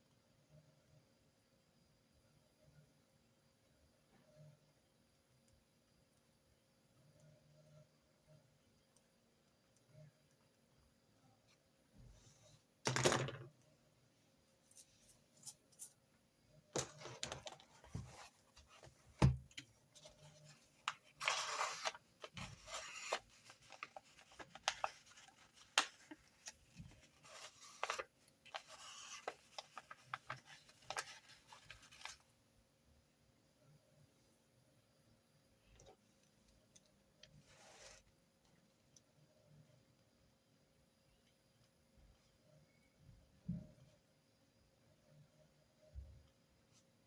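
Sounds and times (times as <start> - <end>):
paper rubbing and rustling: 20.0 - 32.2.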